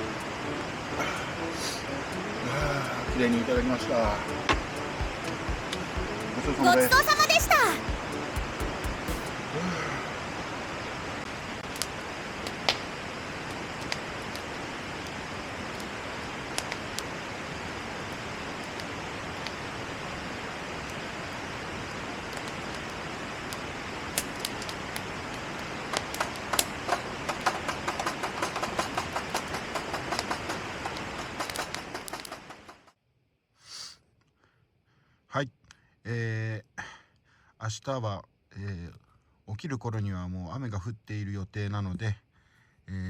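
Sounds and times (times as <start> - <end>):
rapid crackling: 22.3 - 32.9
sharp clicks: 25.9 - 32.9.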